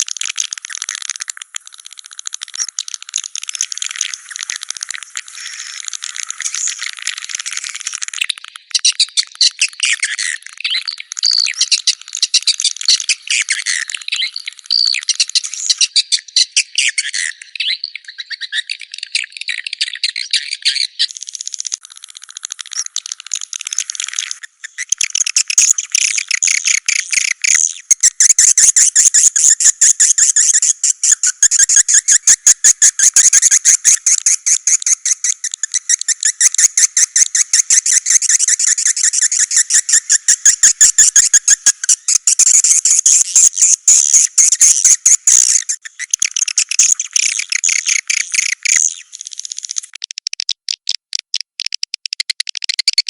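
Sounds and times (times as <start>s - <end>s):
quick sharp clicks: 32.7s - 53.0s.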